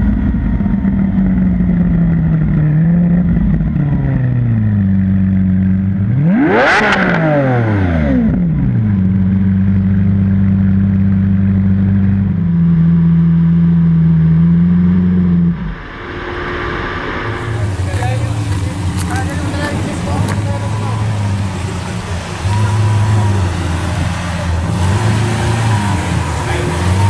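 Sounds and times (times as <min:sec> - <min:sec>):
sports car engine idling: 0:00.0 - 0:06.4, 0:07.9 - 0:27.0
sharp engine rev: 0:06.1 - 0:08.4, 0:14.6 - 0:27.0.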